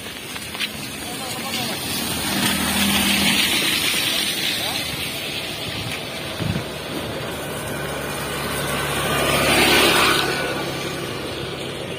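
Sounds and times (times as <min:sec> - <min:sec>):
vehicle engine passing: 0:01.0 - 0:11.9.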